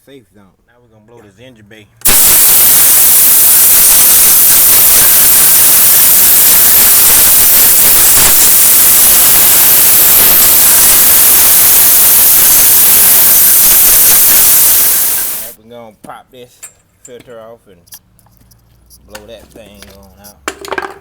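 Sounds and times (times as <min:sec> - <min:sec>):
compressed air hissing: 0:02.1 - 0:15.6.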